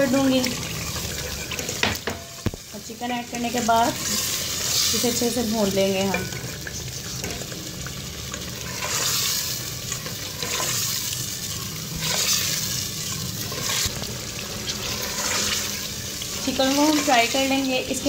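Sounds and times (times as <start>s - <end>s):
chicken sizzling in hot oil: 0.0s - 18.0s
spatula scraping pot: 8.5s - 17.6s.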